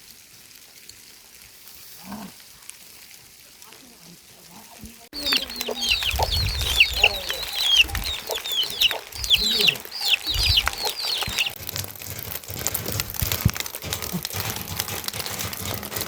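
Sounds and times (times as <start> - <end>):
chickens peeping: 5.2 - 11.6
scattered clicks: 5.2 - 15.9.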